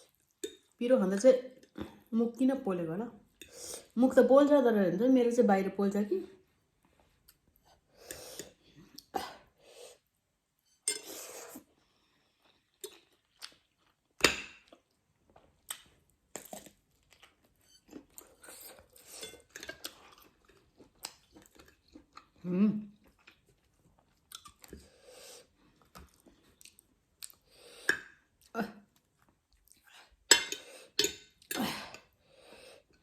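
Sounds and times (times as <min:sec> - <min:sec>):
utensils clinking against dishes: 0:10.9 - 0:11.1
chewing with crunching: 0:12.3 - 0:27.5, 0:28.3 - 0:30.2.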